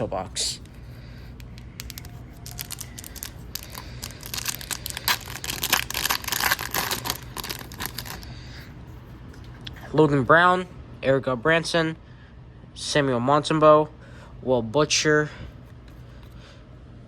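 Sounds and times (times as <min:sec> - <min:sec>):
foil wrapper tearing and crinkling: 0:01.4 - 0:08.3.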